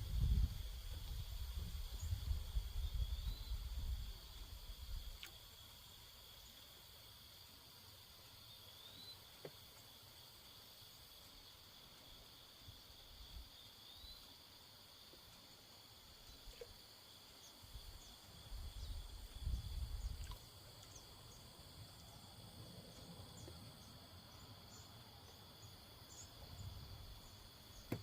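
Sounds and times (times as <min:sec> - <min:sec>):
wind rumble on microphone: 0:00.0 - 0:05.2, 0:17.8 - 0:20.4
crickets and insects trilling: 0:00.0 - 0:28.0.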